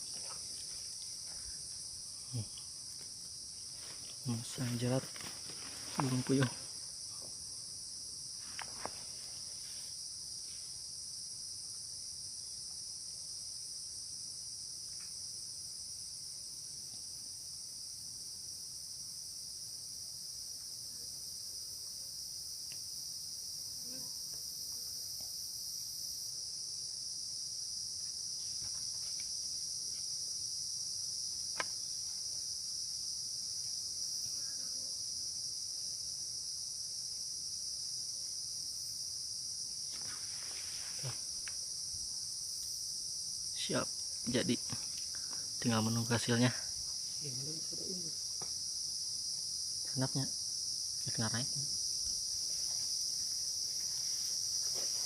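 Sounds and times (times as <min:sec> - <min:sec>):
insects chirping shrilly: 0:00.0 - 0:12.5, 0:25.8 - 0:55.0.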